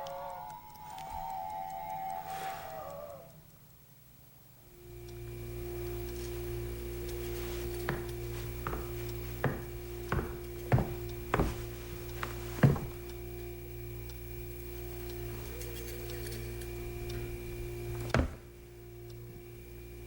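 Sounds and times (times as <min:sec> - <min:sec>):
steady hum: 0:00.0 - 0:20.0
sharp wooden knocks: 0:08.6 - 0:11.6.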